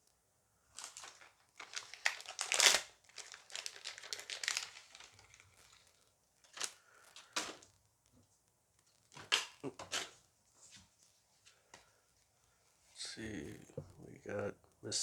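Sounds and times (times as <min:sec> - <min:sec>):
foil pack crackling: 0:00.7 - 0:07.9.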